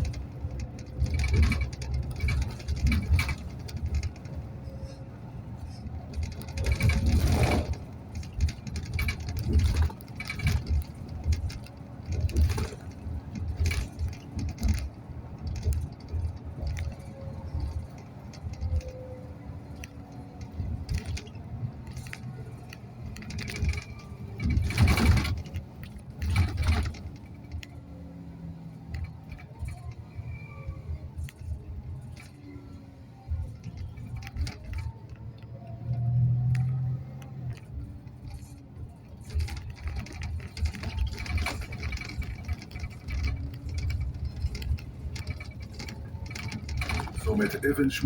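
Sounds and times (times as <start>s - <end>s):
interior rattling and clinking: 0.0s - 4.5s, 5.7s - 19.0s, 37.6s - 48.0s
bus engine and road rumble: 0.0s - 48.0s.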